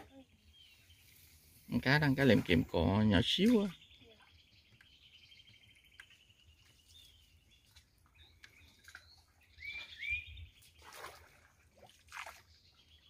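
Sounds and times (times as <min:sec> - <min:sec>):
bird chirps: 0:00.0 - 0:10.9
curved whistled bird notes: 0:09.4 - 0:10.7.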